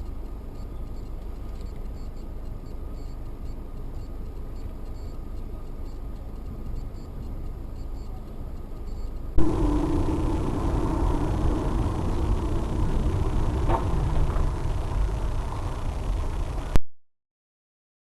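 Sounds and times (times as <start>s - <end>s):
faint light ticks: 0.0s - 9.3s
car road and engine rumble: 9.4s - 16.8s.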